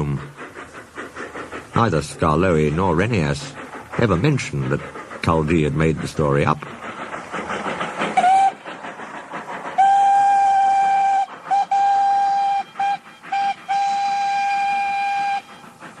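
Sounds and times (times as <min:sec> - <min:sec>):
faint rhythmic chuffing: 0:00.0 - 0:16.0
steam locomotive whistle toots: 0:08.2 - 0:08.6, 0:09.8 - 0:15.8.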